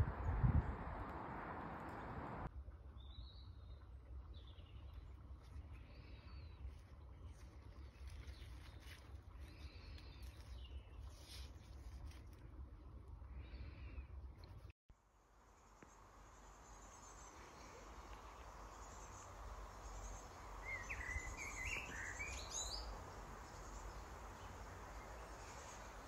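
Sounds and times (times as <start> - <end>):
faint outdoor ambience: 0.0 - 26.0
small bird chirping: 15.8 - 26.0.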